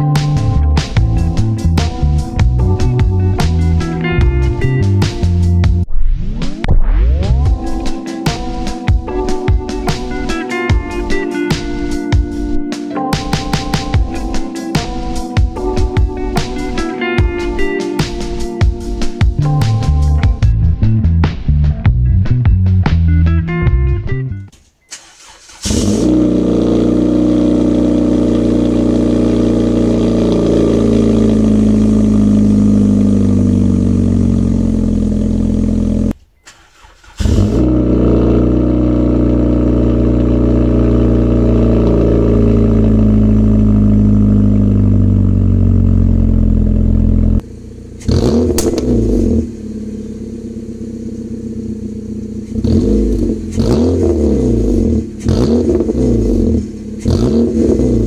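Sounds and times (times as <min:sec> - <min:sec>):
car engine revving: 0:24.9 - 0:58.0.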